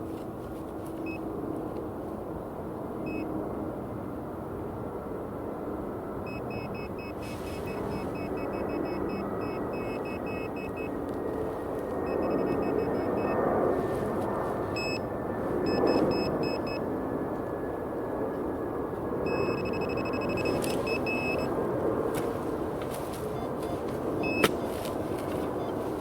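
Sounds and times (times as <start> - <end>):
rustling noise: 0.0 - 1.1, 7.2 - 8.2, 13.7 - 14.8, 22.1 - 26.0
metal detector beeping: 6.3 - 11.0, 12.0 - 13.4, 14.7 - 16.8, 19.3 - 21.6, 22.2 - 26.0.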